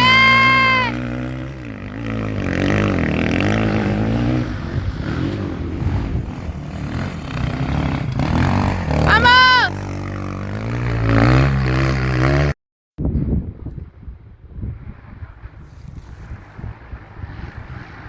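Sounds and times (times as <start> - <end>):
motorcycle engine revving: 0.0 - 12.6, 16.0 - 18.0.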